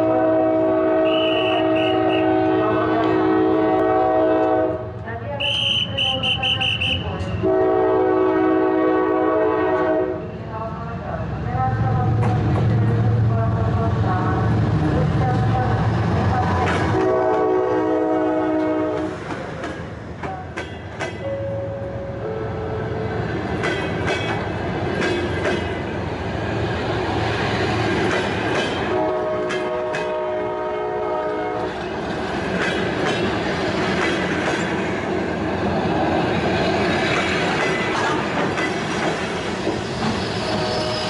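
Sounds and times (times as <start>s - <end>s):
train horn chord: 0.0s - 4.9s, 5.7s - 10.2s, 16.9s - 19.2s, 21.2s - 23.0s, 28.8s - 31.7s
diesel locomotive engine rumbling: 0.0s - 41.0s
train wheels clicking over rail joints: 16.5s - 17.5s, 18.5s - 21.3s, 23.5s - 26.0s, 27.7s - 30.4s, 31.6s - 35.4s, 36.4s - 40.7s.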